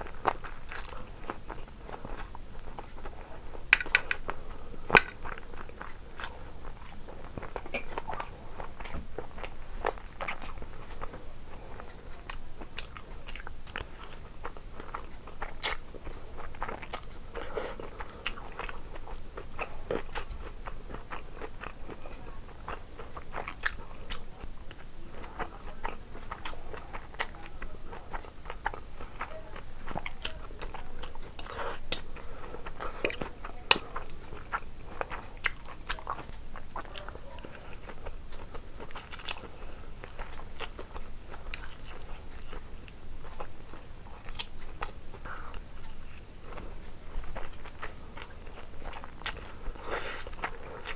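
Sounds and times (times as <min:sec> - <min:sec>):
person biting and chewing: 0:00.0 - 0:06.4.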